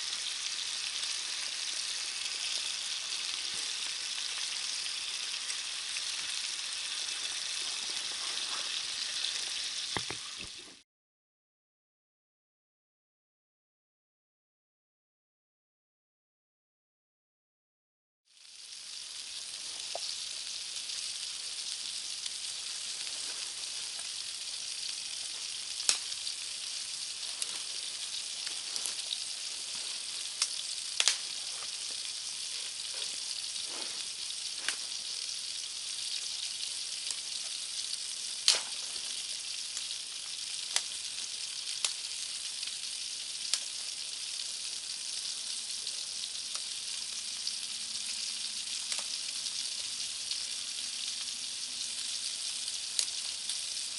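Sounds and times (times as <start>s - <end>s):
food sizzling in a pan: 0.0s - 10.8s, 18.3s - 53.9s
sharp pops: 30.4s - 31.3s, 38.4s - 38.8s.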